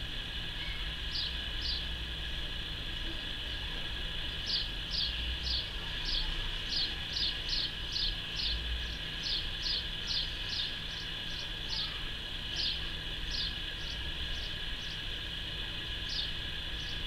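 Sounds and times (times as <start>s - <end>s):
small bird chirping: 0.6s - 1.9s, 4.4s - 15.0s, 16.1s - 17.0s.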